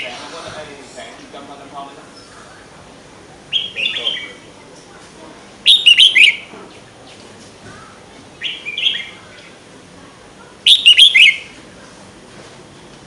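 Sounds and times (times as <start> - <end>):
songbird singing: 2.0 - 5.0, 5.6 - 12.0.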